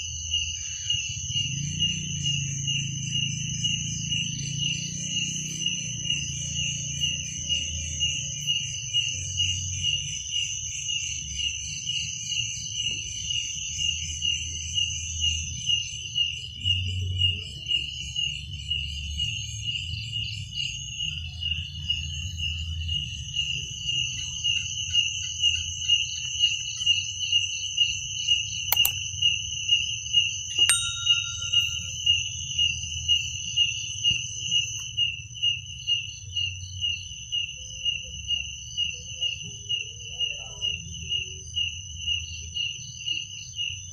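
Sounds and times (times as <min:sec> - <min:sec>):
cricket chirping: 0:00.0 - 0:43.9
insects trilling: 0:00.0 - 0:43.9
sharp clicks: 0:28.8 - 0:29.0.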